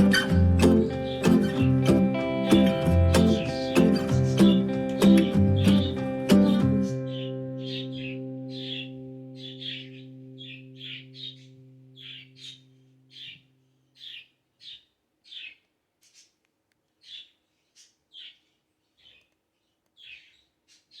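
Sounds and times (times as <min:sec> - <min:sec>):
low musical chord: 0:00.0 - 0:12.9
bird chirping: 0:00.0 - 0:21.0.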